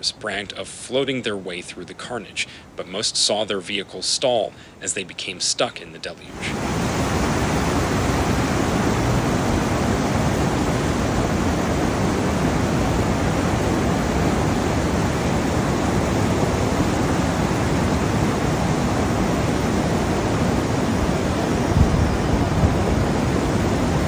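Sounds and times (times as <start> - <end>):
floodwater rushing: 6.3 - 24.0.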